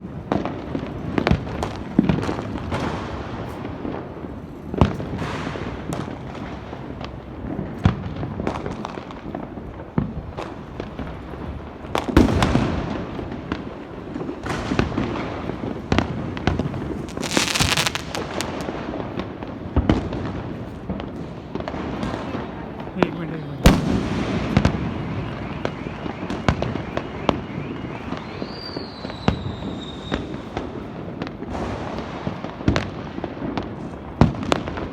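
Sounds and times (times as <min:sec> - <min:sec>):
distant firecrackers crackling: 0:00.0 - 0:34.9
firecracker bangs and booms: 0:00.0 - 0:34.9
whistling rocket hissing crackle: 0:16.7 - 0:18.7, 0:24.5 - 0:30.8.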